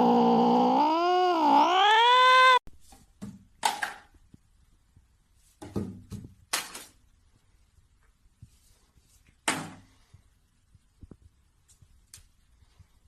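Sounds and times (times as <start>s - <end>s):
cat yowling: 0.0s - 2.6s.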